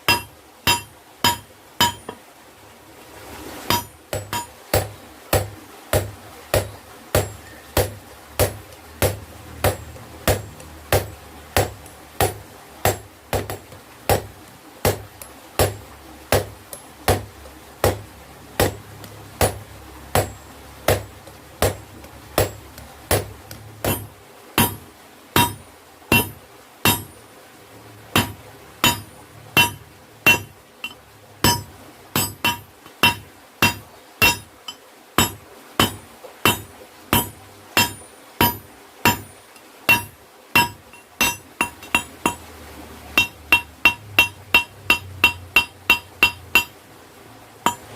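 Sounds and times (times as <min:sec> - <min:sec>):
hammer on hot steel anvil: 0:00.0 - 0:02.2, 0:03.7 - 0:14.3, 0:19.4 - 0:21.0, 0:22.4 - 0:24.8, 0:25.4 - 0:27.1, 0:28.2 - 0:39.3, 0:39.9 - 0:42.4, 0:43.2 - 0:46.8, 0:47.6 - 0:47.9.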